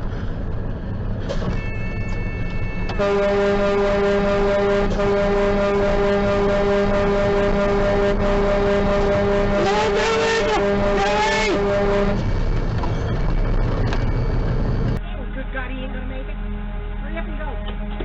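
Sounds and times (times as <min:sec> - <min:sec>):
air horn blast: 0:02.9 - 0:12.4.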